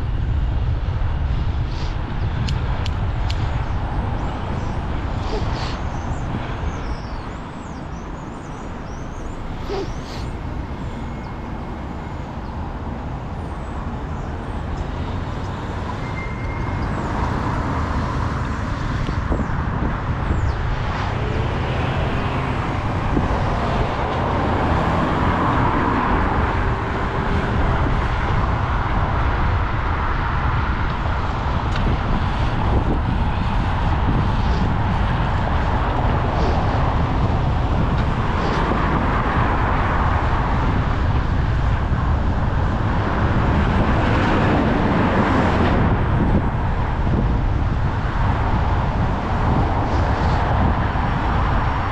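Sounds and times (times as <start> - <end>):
road traffic: 0.0 - 51.9
wind on microphone: 0.0 - 51.9.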